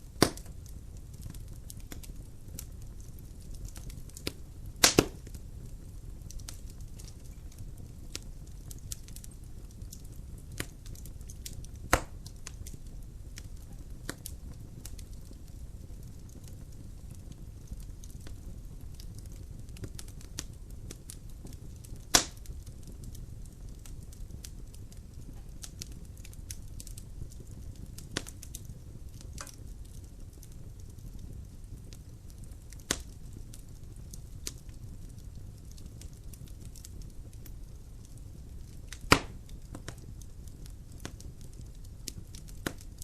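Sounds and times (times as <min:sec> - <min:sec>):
fire crackling in fireplace: 0:00.0 - 0:43.0
loud pops from logs: 0:00.2 - 0:00.5, 0:04.8 - 0:05.3, 0:11.9 - 0:12.2, 0:22.1 - 0:22.4, 0:39.0 - 0:39.4.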